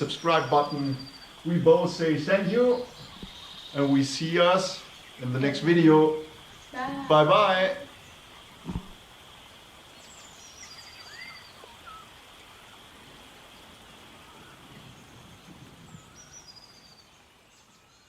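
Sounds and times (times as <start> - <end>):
whistled bird chirps: 0.0 - 1.4, 10.0 - 12.8, 14.3 - 18.0
steady hiss: 0.0 - 18.0
bird trilled call: 10.0 - 12.8.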